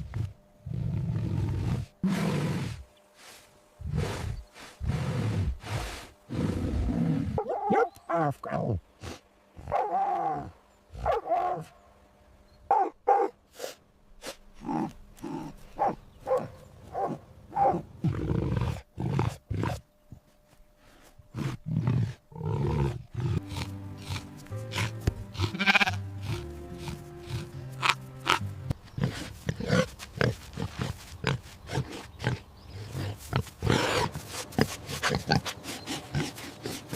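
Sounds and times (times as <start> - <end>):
animal cries and roaring calls: 21.3 - 36.9
background music: 22.9 - 29.7.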